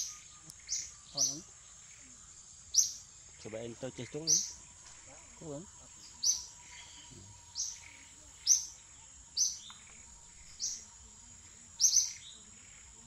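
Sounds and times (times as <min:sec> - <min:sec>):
bird chirping: 0:00.0 - 0:13.0
high-pitched whine: 0:00.0 - 0:13.0.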